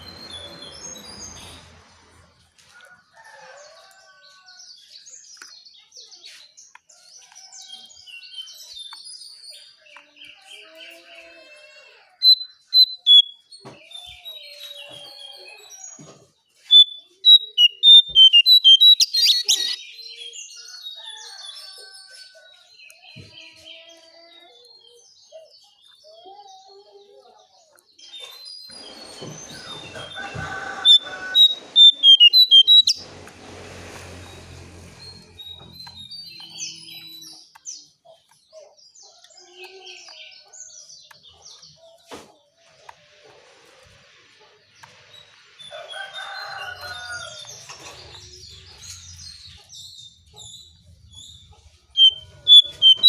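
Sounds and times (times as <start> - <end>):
bird chirps and trills: 12.2 - 16.0, 16.6 - 20.7, 28.1 - 33.0, 44.9 - 53.0.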